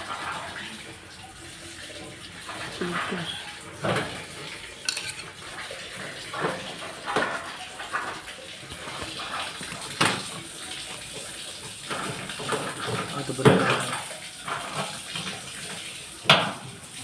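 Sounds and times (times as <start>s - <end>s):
hard objects clinking and knocking: 4.8s - 5.4s.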